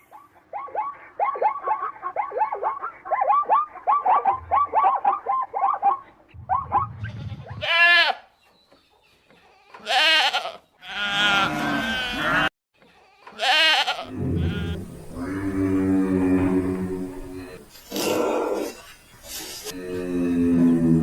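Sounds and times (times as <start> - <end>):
goats bleating: 9.8 - 12.5, 13.3 - 15.4.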